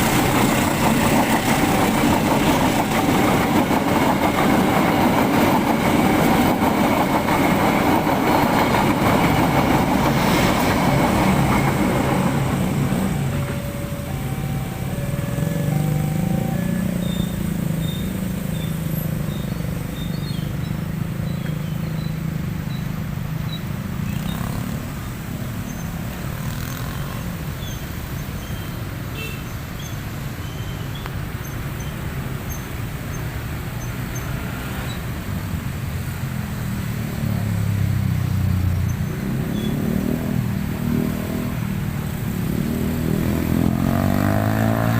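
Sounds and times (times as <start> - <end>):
vehicle engine humming: 0.0 - 25.3
rain and wind hiss: 30.2 - 44.9.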